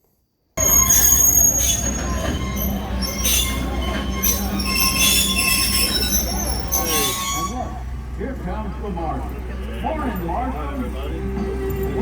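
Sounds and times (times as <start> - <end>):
high squealing tones: 0.6 - 7.7
train wheels rumbling on rail: 0.6 - 12.0.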